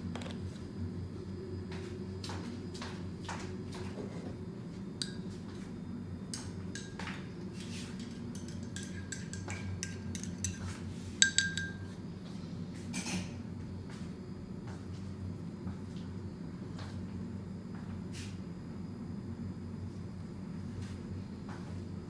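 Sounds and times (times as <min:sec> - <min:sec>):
steady low hum: 0:00.0 - 0:22.0
dishes and glasses clinking: 0:06.4 - 0:12.0.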